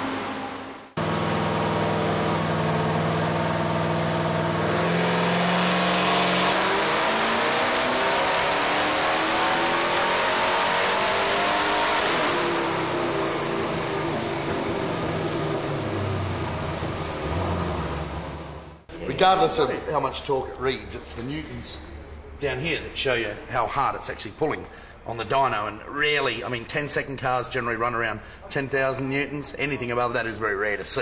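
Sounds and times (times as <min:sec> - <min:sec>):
car engine revving on dyno: 0:00.0 - 0:18.9.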